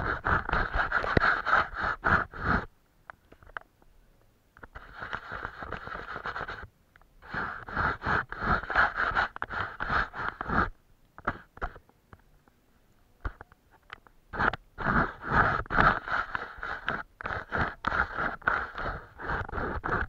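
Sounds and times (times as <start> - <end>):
paintbrush scrubbing paper: 0.0 - 2.7, 4.8 - 11.4, 14.3 - 20.0.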